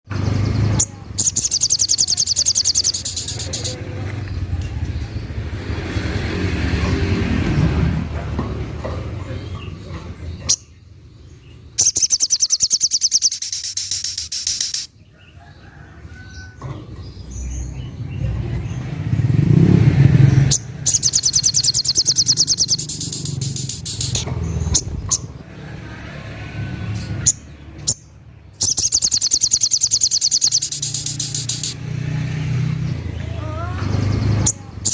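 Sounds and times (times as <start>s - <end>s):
bird rapid high notes: 1.2s - 3.8s, 11.8s - 14.9s, 20.5s - 25.0s, 28.6s - 31.8s.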